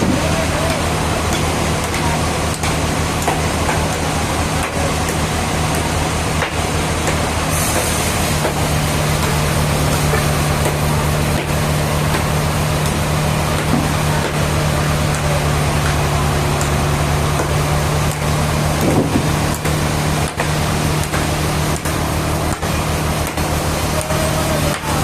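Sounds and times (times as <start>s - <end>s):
sawmill machinery running: 0.0s - 25.0s.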